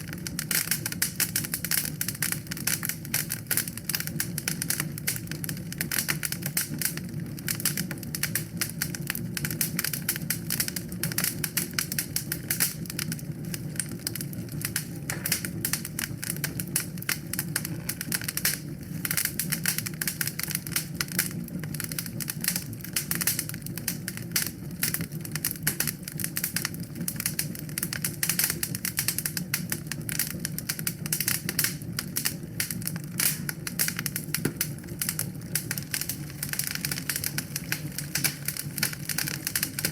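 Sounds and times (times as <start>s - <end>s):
wood fire crackling: 0.0s - 39.9s
low rush of flames: 32.1s - 39.9s.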